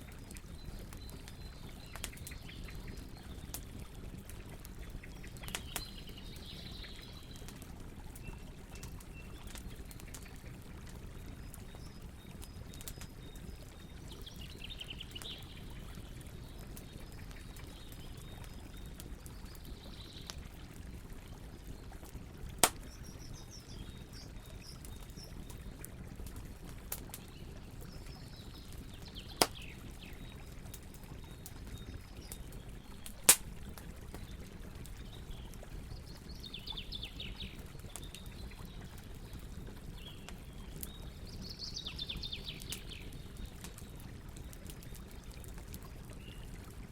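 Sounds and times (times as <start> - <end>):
burning wood popping: 22.1 - 23.2, 23.8 - 35.2.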